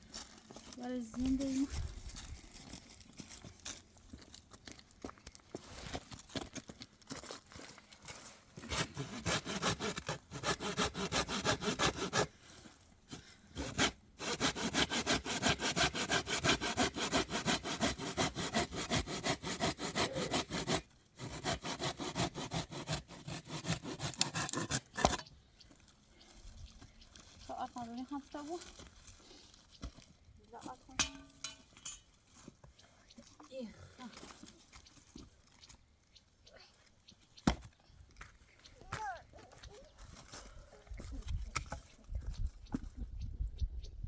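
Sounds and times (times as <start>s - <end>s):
hand saw cutting wood: 8.6s - 12.4s, 13.1s - 25.3s.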